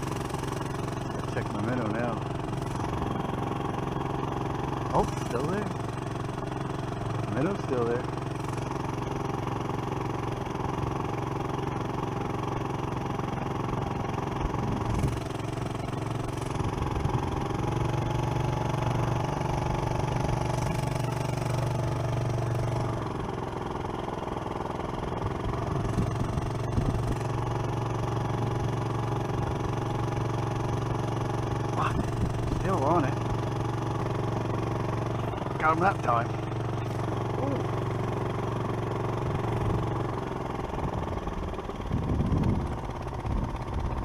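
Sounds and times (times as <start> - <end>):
small engine idling: 0.0 - 44.0.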